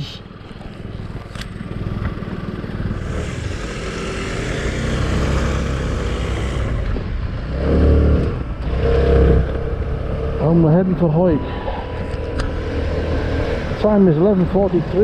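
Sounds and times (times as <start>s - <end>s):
motorcycle engine pulling away: 0.8s - 10.8s.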